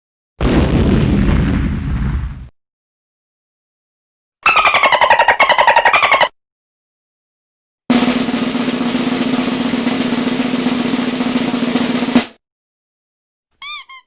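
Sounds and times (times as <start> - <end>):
snare drum roll: 7.9 - 12.4.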